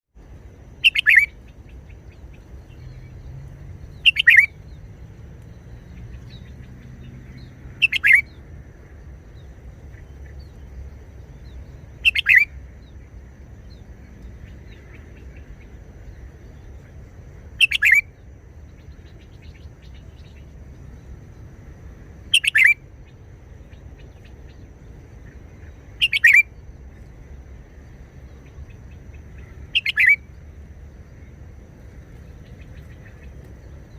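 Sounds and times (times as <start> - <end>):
bird singing short phrases: 0.8 - 8.4, 9.4 - 13.0, 17.6 - 21.0, 22.2 - 22.8, 23.6 - 26.6, 28.3 - 30.4.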